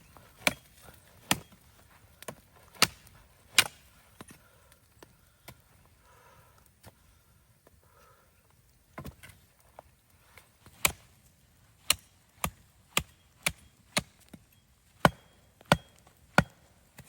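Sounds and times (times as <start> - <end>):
axe chopping wood: 0.4 - 1.6, 2.2 - 3.8, 10.8 - 11.0, 11.8 - 14.4, 15.0 - 17.0.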